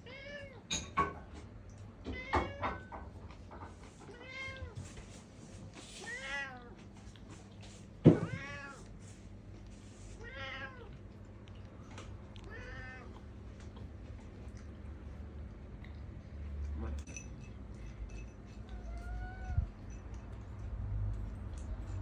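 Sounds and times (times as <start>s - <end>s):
cat meowing: 8.1s - 8.9s, 10.2s - 11.0s, 12.4s - 13.2s, 18.7s - 19.8s.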